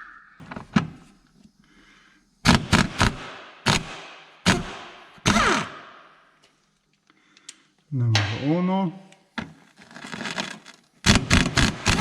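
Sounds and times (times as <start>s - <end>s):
sharp knocks and cracks: 2.5s - 6.1s.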